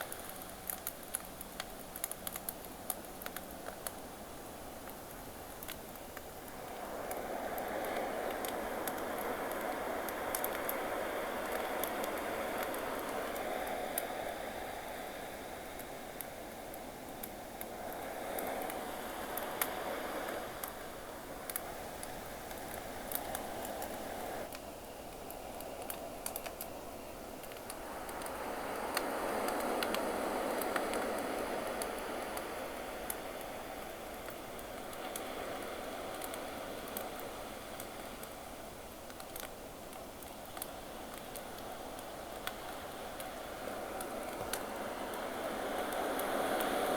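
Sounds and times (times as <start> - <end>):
campfire crackling: 0.0 - 46.9
sea waves washing in: 5.3 - 24.5, 27.3 - 46.9
ocean waves: 27.8 - 38.5, 41.4 - 46.9.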